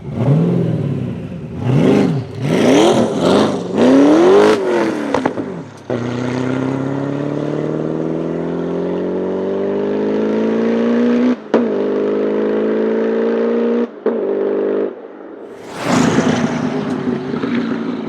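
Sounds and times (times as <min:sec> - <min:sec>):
car engine accelerating hard: 0:00.0 - 0:11.4, 0:15.5 - 0:18.0.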